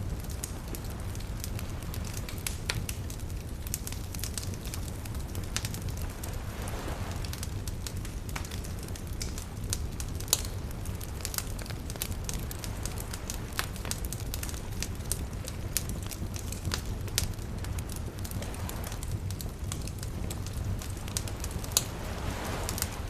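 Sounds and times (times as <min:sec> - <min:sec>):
bonfire crackling and popping: 0:00.0 - 0:23.0
wave washing in: 0:04.6 - 0:08.8, 0:16.5 - 0:23.0.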